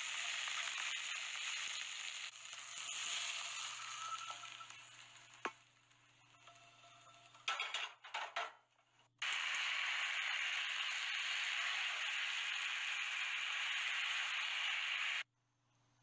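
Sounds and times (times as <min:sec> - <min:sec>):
beef sizzling in a hot pan: 0:00.0 - 0:07.3, 0:09.2 - 0:15.2.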